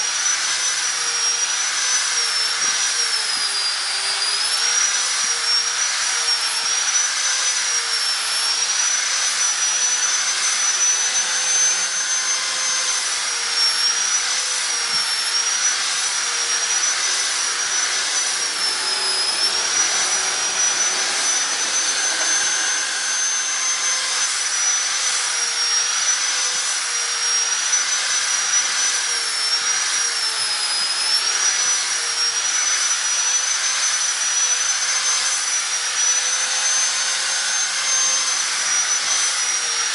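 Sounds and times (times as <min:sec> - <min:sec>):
grinder motor whine: 0:00.0 - 0:39.9
disc grinding metal: 0:13.6 - 0:24.2.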